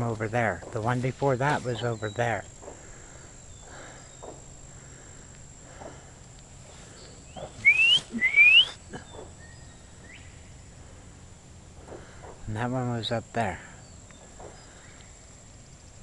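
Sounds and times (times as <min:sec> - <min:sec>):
faint short whistle: 0:07.6 - 0:08.8
loud rising whistles: 0:07.6 - 0:08.8.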